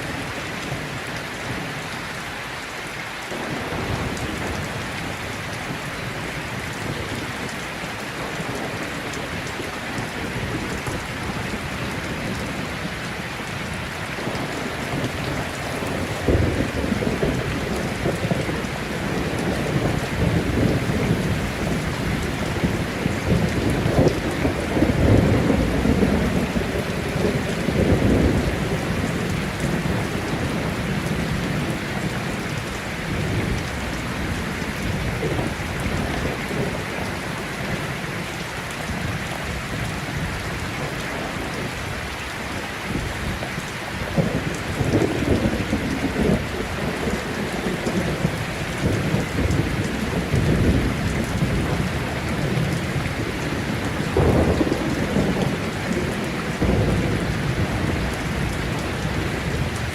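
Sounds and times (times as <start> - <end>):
heavy rain: 0.0 - 59.9
rolling thunder: 14.2 - 37.8, 44.0 - 59.9.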